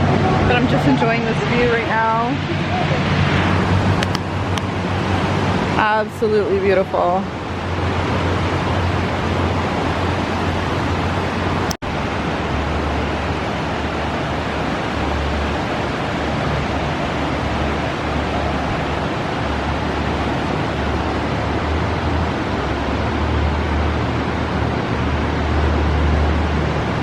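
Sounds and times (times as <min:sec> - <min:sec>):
river rapids roaring: 0:00.0 - 0:27.0.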